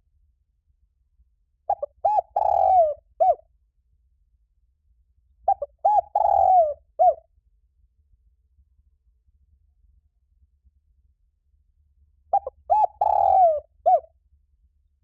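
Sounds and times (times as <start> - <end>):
dove cooing: 1.7 - 3.4, 5.5 - 7.2, 12.3 - 14.1.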